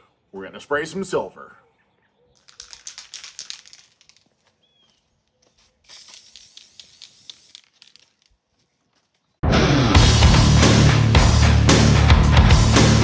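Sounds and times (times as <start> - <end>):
aerosol can rattling clicks: 2.4 - 4.3, 5.9 - 8.3
aerosol spray hiss: 5.9 - 7.6.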